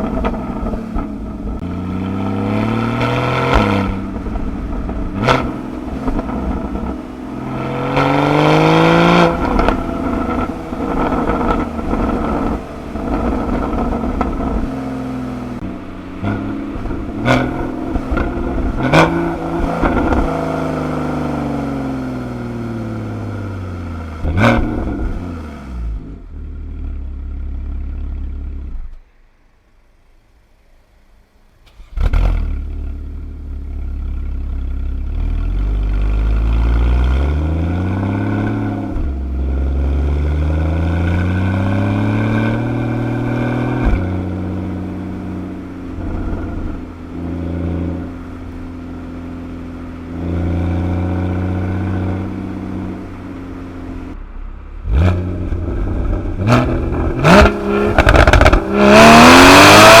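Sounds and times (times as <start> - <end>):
exhaust pops: 0.0 - 1.7, 9.1 - 14.8, 15.5 - 20.4, 51.3 - 60.0
sports car engine accelerating: 0.0 - 29.0, 31.8 - 60.0.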